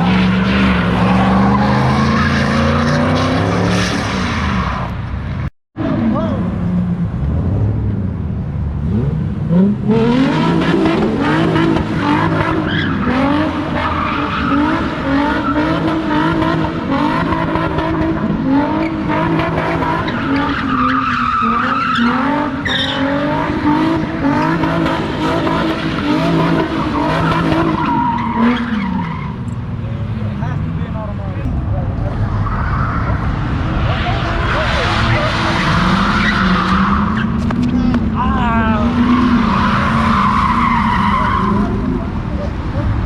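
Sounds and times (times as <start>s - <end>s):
tires squealing: 0.0s - 6.5s, 8.8s - 43.0s
car engine revving high: 8.8s - 29.1s.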